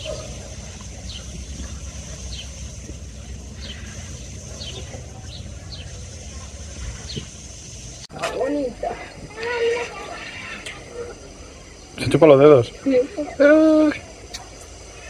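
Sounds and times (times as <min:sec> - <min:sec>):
car engine running: 0:00.0 - 0:08.1
bird chirping: 0:00.0 - 0:13.5.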